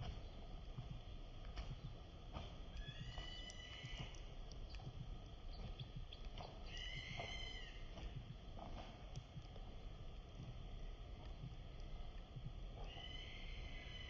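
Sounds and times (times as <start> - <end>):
low background rumble: 0.0 - 14.0
bird calling: 2.7 - 4.8, 5.5 - 8.0, 12.8 - 14.0.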